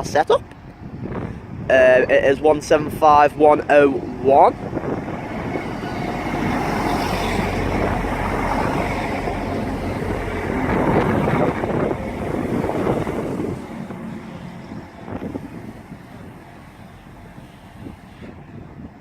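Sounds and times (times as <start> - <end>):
wind on microphone: 0.0 - 19.0
train rumbling past: 0.6 - 19.0.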